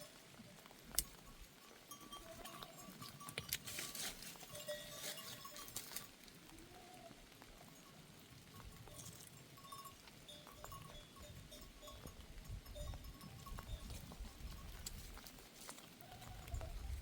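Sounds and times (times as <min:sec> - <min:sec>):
goat bells clinking: 0:00.0 - 0:06.2, 0:07.4 - 0:17.0.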